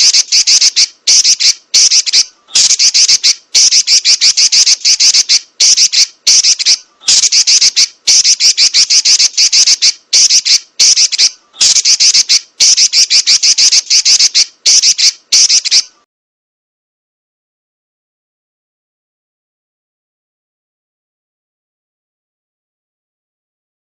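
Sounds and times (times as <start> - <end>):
bird chattering trill: 0.0 - 16.0.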